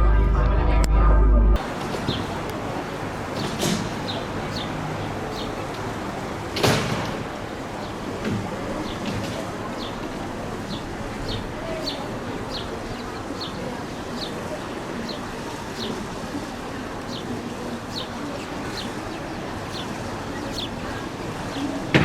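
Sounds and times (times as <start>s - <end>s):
small bird chirping: 3.4s - 5.8s.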